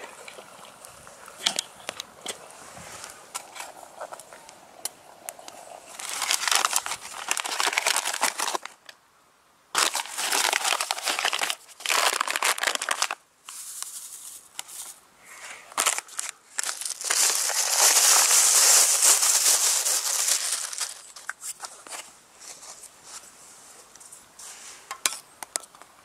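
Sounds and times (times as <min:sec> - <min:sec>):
bag crinkling: 0:05.6 - 0:08.8, 0:09.8 - 0:15.0, 0:15.7 - 0:22.0.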